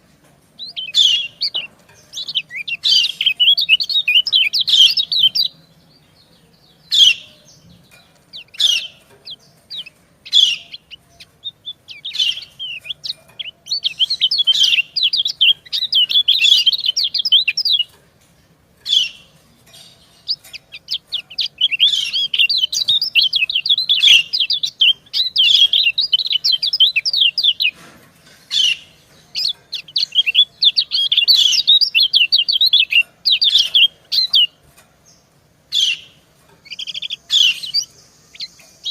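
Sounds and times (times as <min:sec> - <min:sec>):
bird chirps: 0:00.6 - 0:18.0, 0:18.8 - 0:38.9
fast high bird twittering: 0:08.3 - 0:17.9, 0:18.9 - 0:27.7, 0:28.5 - 0:34.6, 0:35.7 - 0:38.9.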